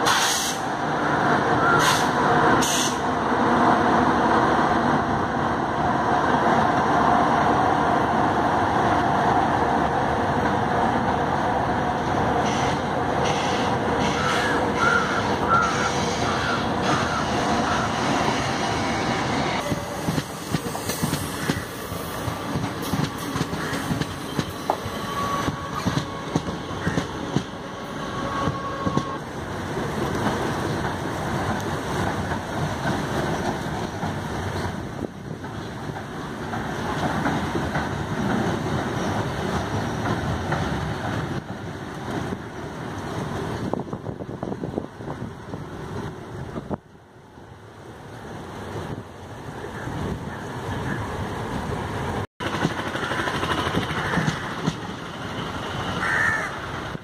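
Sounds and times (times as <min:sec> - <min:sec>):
train rumbling over bridge: 0:00.0 - 0:57.0
faint high wheel squeal: 0:13.3 - 0:18.0, 0:24.2 - 0:26.3, 0:28.0 - 0:29.2.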